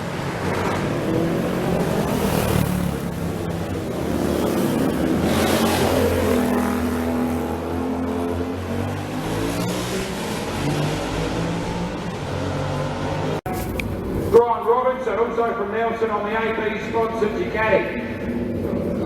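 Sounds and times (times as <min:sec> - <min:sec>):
motorcycle engine revving: 0:00.0 - 0:14.3
motorcycle engines idling: 0:00.0 - 0:19.0.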